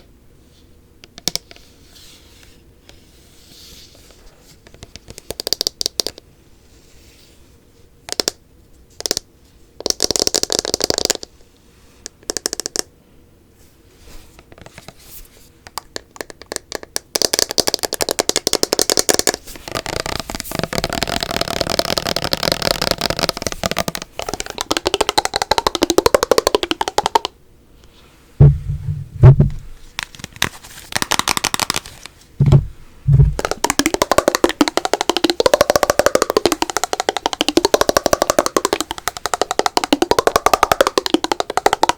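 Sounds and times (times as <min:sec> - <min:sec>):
fast tapping and scratching: 0:04.6 - 0:06.2, 0:09.0 - 0:11.3, 0:12.1 - 0:12.9, 0:15.7 - 0:27.4, 0:30.0 - 0:41.9
short deep thuds: 0:28.4 - 0:29.8, 0:32.4 - 0:33.4.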